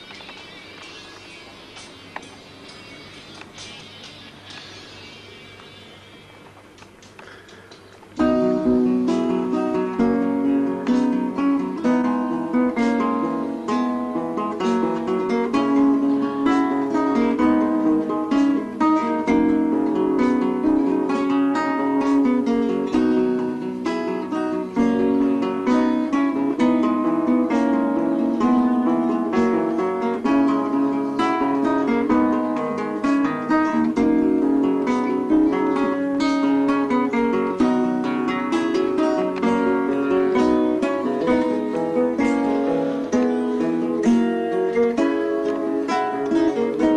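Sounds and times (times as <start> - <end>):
acoustic guitar playing: 0.0 - 46.9.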